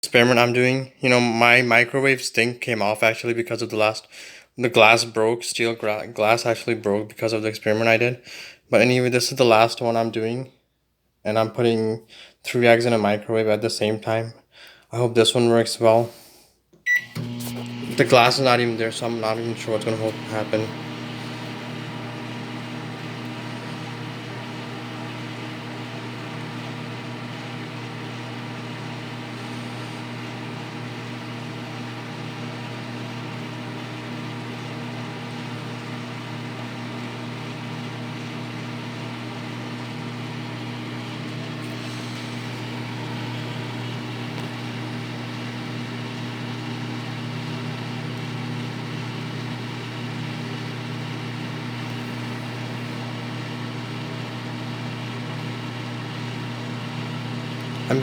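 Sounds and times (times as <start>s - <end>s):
microwave oven humming: 16.9s - 58.0s
fan whirring: 17.0s - 32.9s, 56.4s - 58.0s.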